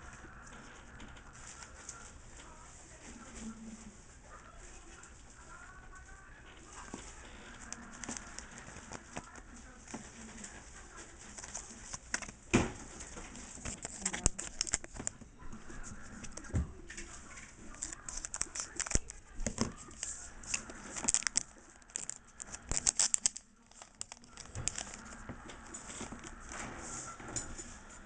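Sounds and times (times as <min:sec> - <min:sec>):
cards being handled: 0:06.8 - 0:15.2, 0:16.2 - 0:26.5
foil wrapper crinkling and tearing: 0:13.4 - 0:15.2, 0:17.5 - 0:26.4.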